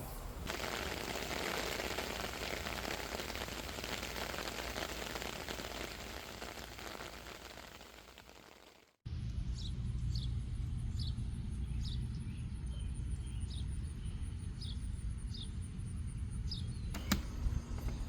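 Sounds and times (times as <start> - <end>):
rain falling: 0.1 - 8.9.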